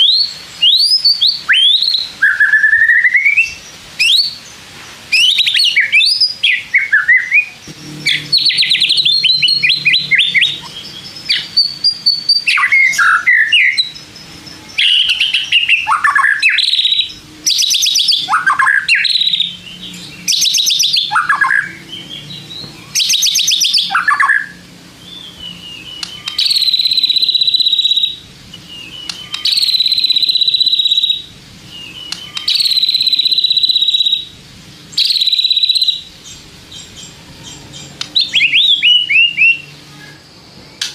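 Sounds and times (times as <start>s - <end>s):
songbird whistles and trills: 0.0s - 40.9s
harsh buzzing bird note: 7.6s - 12.3s.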